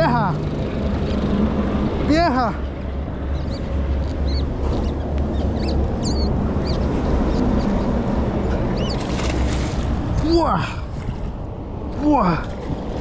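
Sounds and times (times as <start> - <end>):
birds chirping: 2.5 - 9.4.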